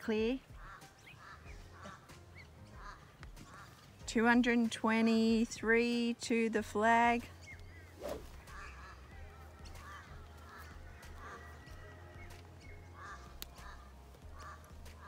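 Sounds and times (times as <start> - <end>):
bird calling: 0.0 - 4.0, 7.3 - 15.0.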